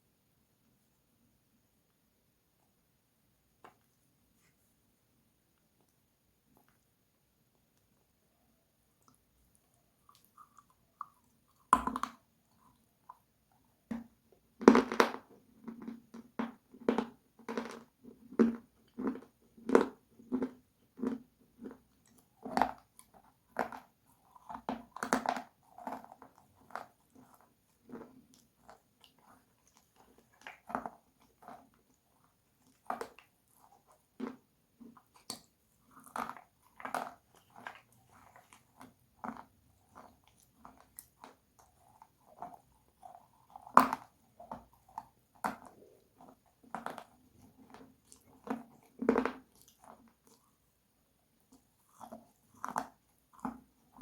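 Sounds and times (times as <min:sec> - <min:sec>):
crunchy biting and chewing: 0:19.1 - 0:31.7, 0:32.6 - 0:50.4.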